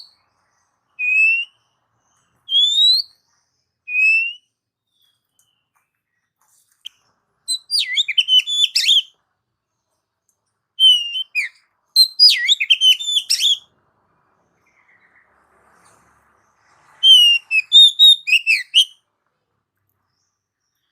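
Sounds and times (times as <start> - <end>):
bird singing whistled notes: 0.0 - 6.2, 6.8 - 9.2, 10.8 - 13.7, 16.8 - 19.1.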